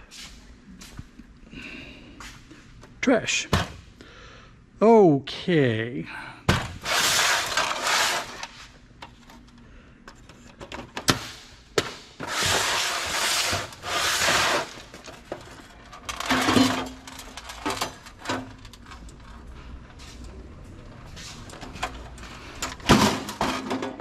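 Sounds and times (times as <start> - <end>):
scraping and rubbing: 6.8 - 8.8, 12.2 - 20.2.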